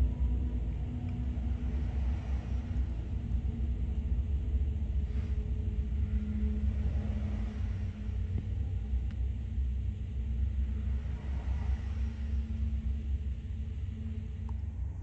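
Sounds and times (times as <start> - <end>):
diesel locomotives rumbling: 0.0 - 15.0.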